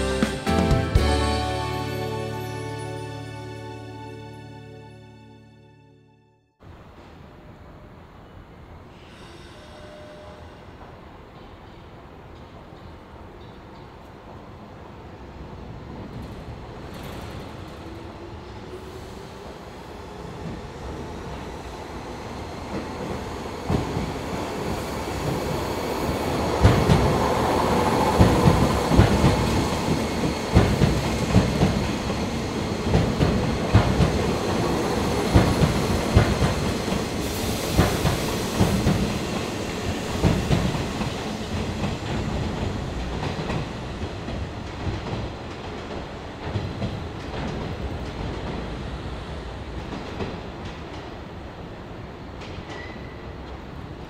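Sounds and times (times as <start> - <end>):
train wheels clickety-clack: 16.0 - 18.2, 22.5 - 51.7, 52.3 - 54.0.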